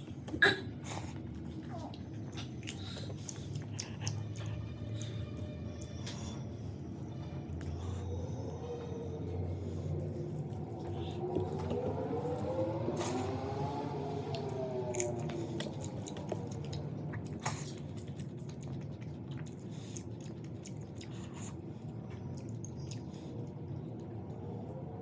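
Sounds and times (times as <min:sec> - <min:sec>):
wet chewing: 0:01.1 - 0:05.4, 0:14.3 - 0:23.8.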